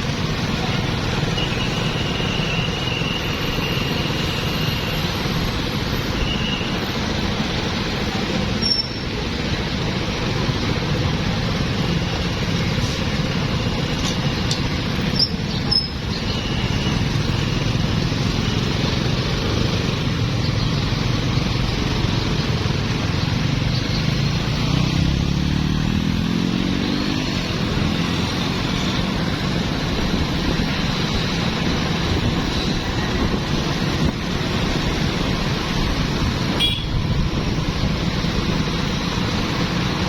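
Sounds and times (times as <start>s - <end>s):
busy street traffic: 0.0s - 40.0s
engine speeding up: 23.4s - 30.4s.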